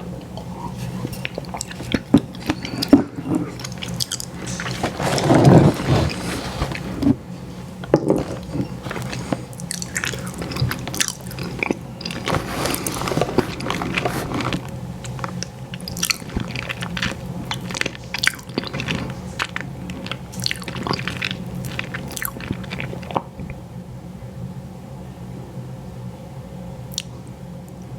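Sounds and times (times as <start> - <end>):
biting and chewing ice cream: 0.0 - 23.6
faint steady hum: 0.0 - 27.9
wet mouth clicks: 26.9 - 27.1.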